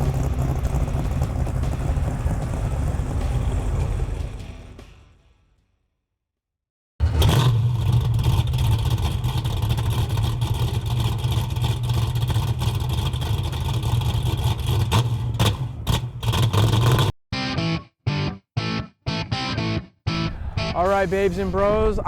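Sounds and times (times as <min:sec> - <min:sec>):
car engine running: 0:00.0 - 0:05.2, 0:07.0 - 0:17.1, 0:20.2 - 0:22.0.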